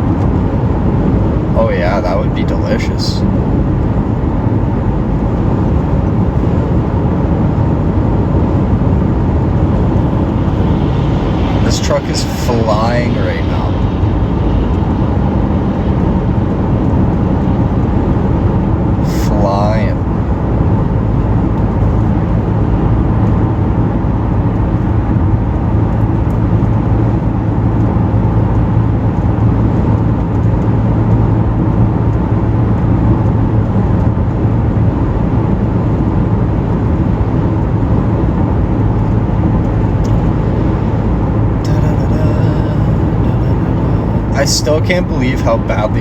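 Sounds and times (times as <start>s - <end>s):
car cabin road and engine drone: 0.0s - 46.0s.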